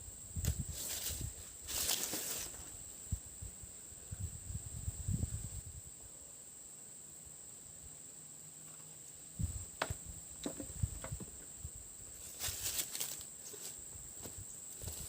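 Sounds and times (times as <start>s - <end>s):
rustling: 0.7s - 2.8s, 12.2s - 13.8s
insects shrilling: 8.6s - 15.0s.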